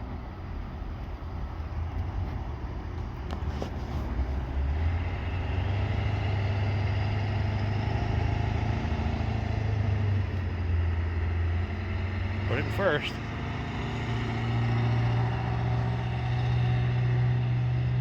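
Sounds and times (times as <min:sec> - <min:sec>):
truck engine idling: 0:00.0 - 0:13.5.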